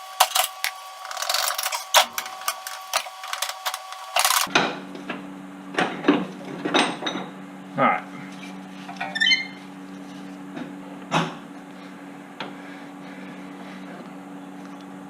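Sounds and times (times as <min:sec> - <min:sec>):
steady low hum: 0:00.0 - 0:15.0
metal parts clinking: 0:00.2 - 0:04.5.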